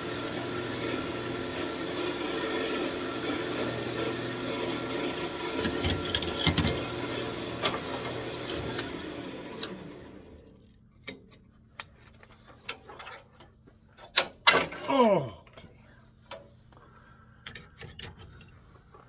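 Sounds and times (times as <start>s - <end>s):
wood lathe humming: 0.0s - 10.4s.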